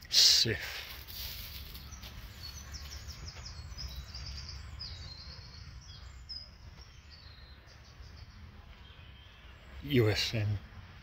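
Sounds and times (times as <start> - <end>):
songbird chirping and trilling: 0.4 - 11.0.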